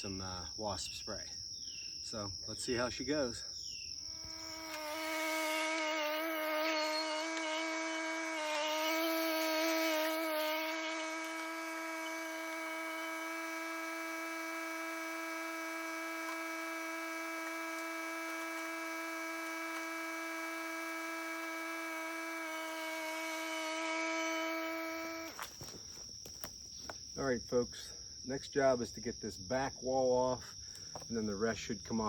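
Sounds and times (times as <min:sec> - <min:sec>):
tractor engine whining: 0:04.3 - 0:26.9.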